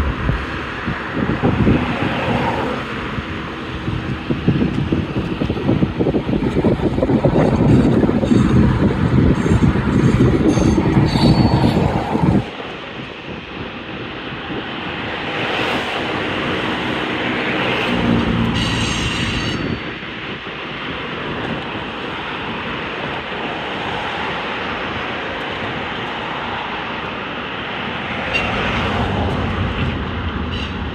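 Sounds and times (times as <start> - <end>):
train wheels rumbling on rails: 0.0 - 30.9
wind buffeting microphone: 0.0 - 30.9
high-pitched wheel squeal: 9.4 - 11.8, 18.5 - 20.0.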